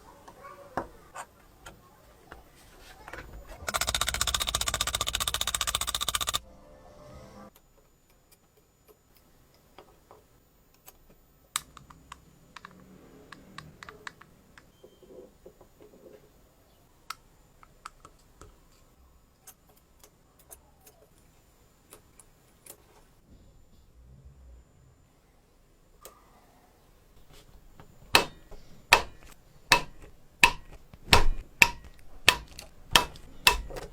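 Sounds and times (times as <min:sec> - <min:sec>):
small parts clicking and tapping: 0:03.6 - 0:06.4, 0:17.0 - 0:23.1, 0:27.2 - 0:33.9.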